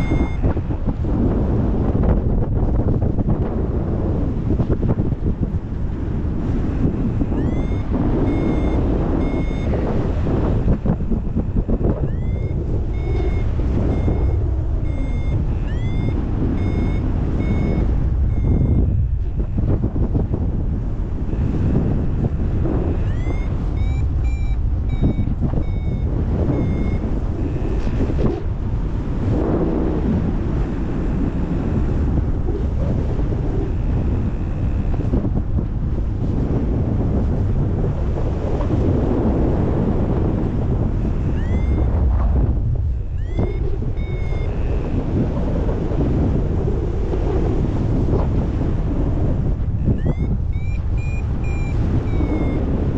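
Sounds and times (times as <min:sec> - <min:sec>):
variometer beeping: 0:00.0 - 0:00.8, 0:06.8 - 0:19.8, 0:22.7 - 0:28.2, 0:41.1 - 0:42.0, 0:43.0 - 0:45.0, 0:49.8 - 0:52.9
wind rush on microphone: 0:00.0 - 0:52.9.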